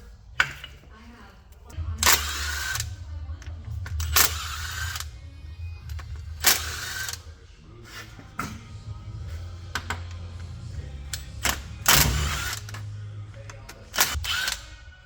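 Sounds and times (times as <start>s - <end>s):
low hum: 8.4s - 14.1s.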